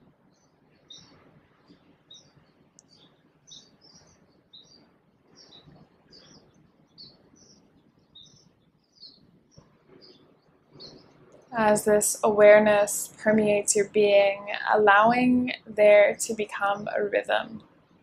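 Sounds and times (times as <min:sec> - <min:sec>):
short bird chirps: 0:00.8 - 0:09.2.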